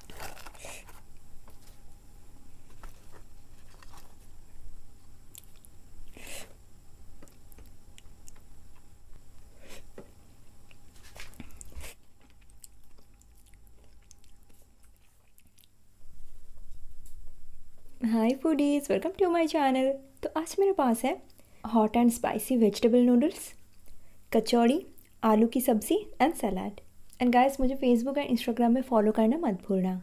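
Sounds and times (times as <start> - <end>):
crunchy bites: 0.0 - 1.2, 5.3 - 6.3
person chewing: 0.0 - 1.7, 5.2 - 9.9, 10.6 - 15.8.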